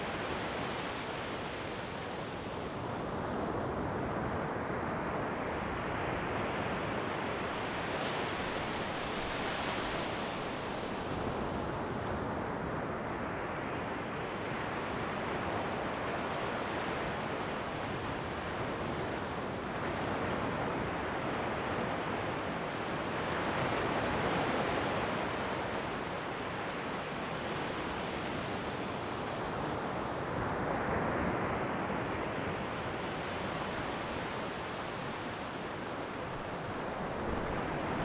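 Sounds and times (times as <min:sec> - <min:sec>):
ocean waves washing on shore: 0:00.0 - 0:38.0.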